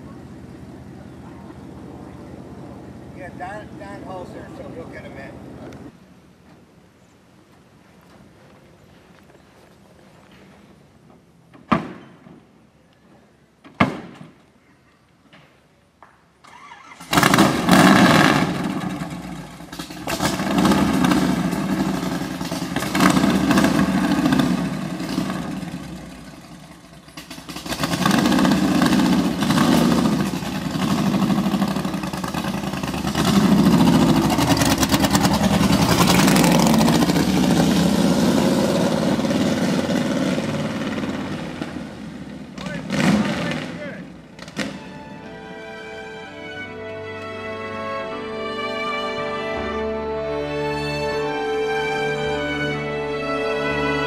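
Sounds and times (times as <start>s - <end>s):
car driving off: 16.5s - 54.0s
race car engine revving: 17.0s - 45.0s.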